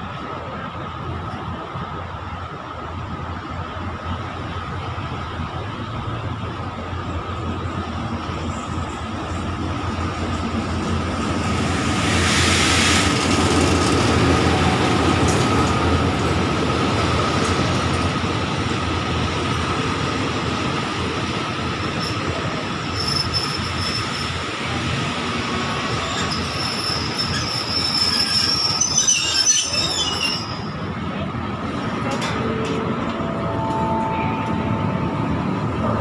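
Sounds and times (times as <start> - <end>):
passenger train rumbling past: 0.0 - 36.0
metallic brake squealing: 22.9 - 24.4, 25.9 - 30.9.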